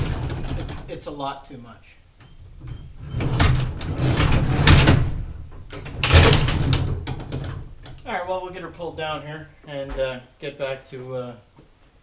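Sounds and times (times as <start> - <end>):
garage door rattling in tracks: 0.0 - 1.0, 2.2 - 8.0.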